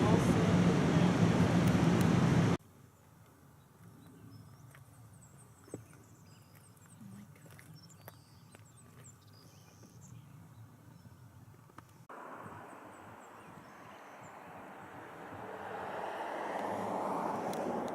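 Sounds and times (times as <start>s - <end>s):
low outdoor rumble: 0.0s - 3.3s.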